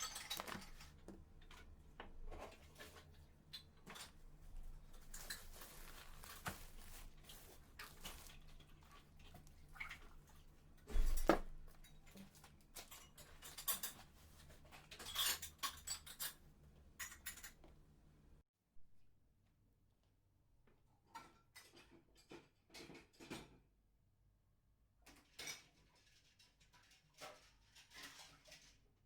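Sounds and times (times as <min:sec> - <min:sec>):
small objects clicking and clinking: 0:00.0 - 0:00.9.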